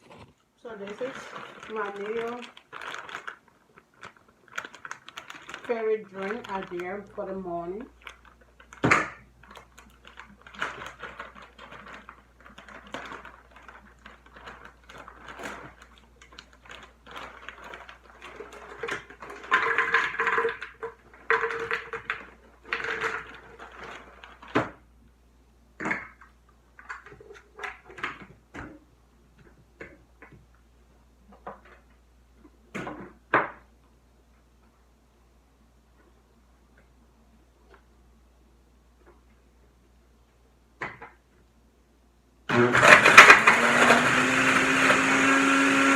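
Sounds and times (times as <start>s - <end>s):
containers and utensils clicking: 17.7s - 23.4s.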